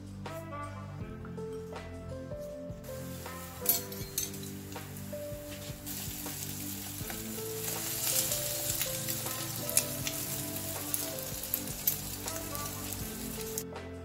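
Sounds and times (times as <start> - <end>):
bread sizzling in oil: 3.0 - 13.6.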